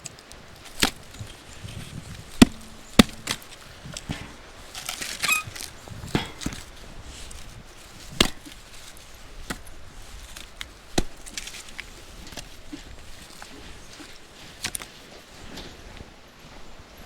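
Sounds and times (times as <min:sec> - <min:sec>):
wood chopping knocks: 0:00.7 - 0:12.6.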